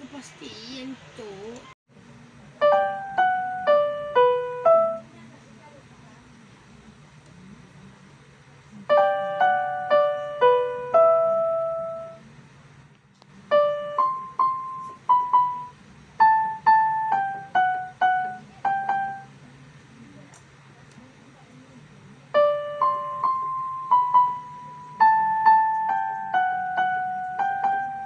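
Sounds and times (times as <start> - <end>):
electronic keyboard piano notes: 2.6 - 5.2, 8.9 - 12.2, 13.5 - 19.3, 22.3 - 28.0.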